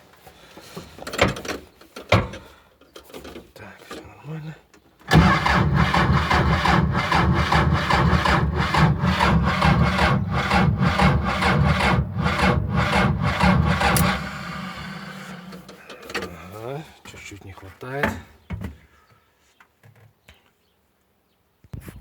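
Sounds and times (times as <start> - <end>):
starter cranking diesel engine: 5.1 - 16.4.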